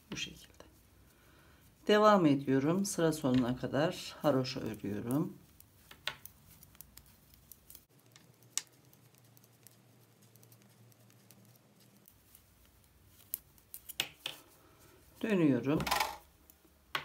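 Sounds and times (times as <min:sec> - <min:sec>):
knitting needles clicking: 0:03.2 - 0:14.6.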